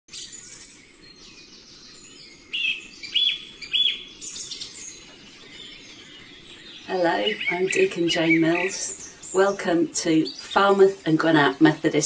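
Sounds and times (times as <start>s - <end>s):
small birds chirping and trilling: 0.1s - 12.0s
bird whistled notes: 2.5s - 4.8s.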